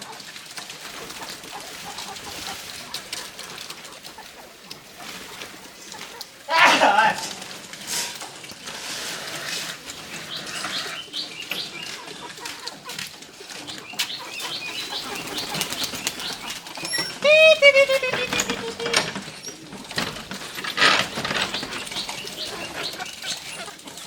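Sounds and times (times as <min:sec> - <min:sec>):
wings flapping: 0:00.0 - 0:24.0
birds chirping: 0:09.4 - 0:24.0
loud long bird call: 0:14.0 - 0:19.1.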